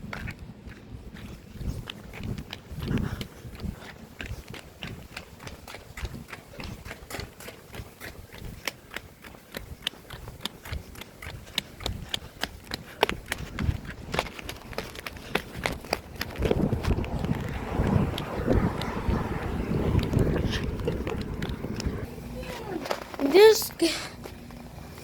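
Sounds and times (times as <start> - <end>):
brisk footsteps: 0.0 - 25.0
low rumble: 16.4 - 22.4.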